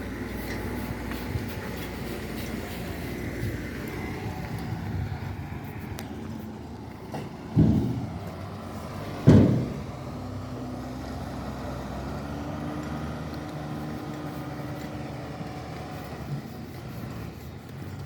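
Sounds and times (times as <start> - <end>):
heavy diesel engine running: 0.0 - 18.0
loud metallic bang: 9.2 - 9.8.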